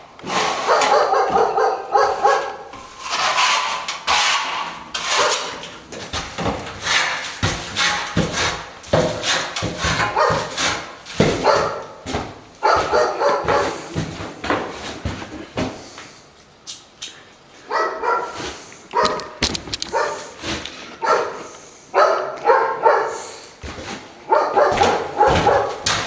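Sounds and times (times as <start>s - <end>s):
dog barking: 0.6s - 2.7s, 9.8s - 14.2s, 17.6s - 23.5s, 24.2s - 26.0s.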